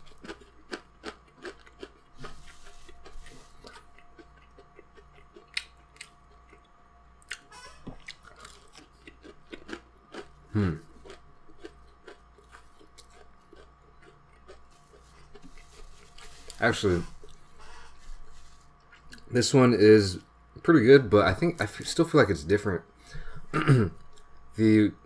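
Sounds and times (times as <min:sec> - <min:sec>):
chewing and crunching: 0:00.0 - 0:19.3, 0:24.0 - 0:24.5
short falling throat sound: 0:10.5 - 0:10.9.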